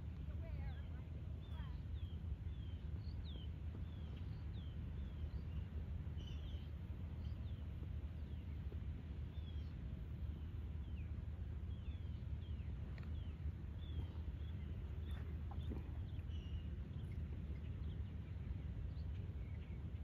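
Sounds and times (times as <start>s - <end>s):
low outdoor rumble: 0.0s - 20.0s
birds chirping: 0.3s - 7.6s, 9.3s - 20.0s.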